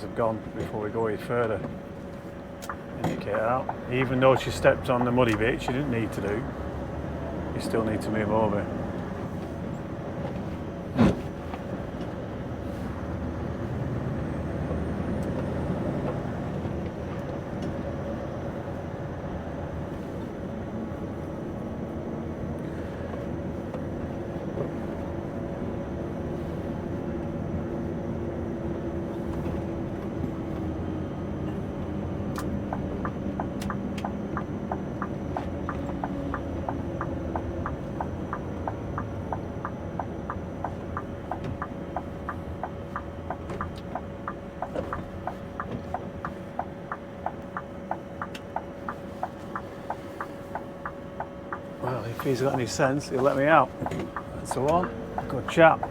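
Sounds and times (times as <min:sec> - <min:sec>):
truck engine running: 0:00.0 - 0:55.9
turn signal ticking: 0:02.6 - 0:06.9, 0:31.6 - 0:55.9.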